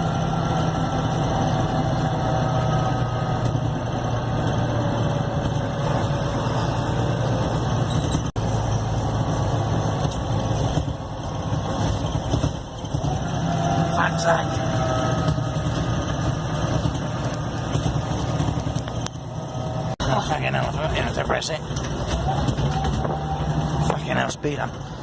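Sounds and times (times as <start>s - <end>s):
bus engine humming: 0.0s - 25.0s.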